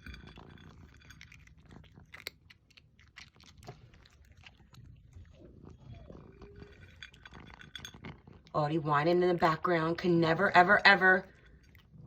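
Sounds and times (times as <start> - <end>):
cats chewing food: 0.0 - 8.6, 11.2 - 12.0.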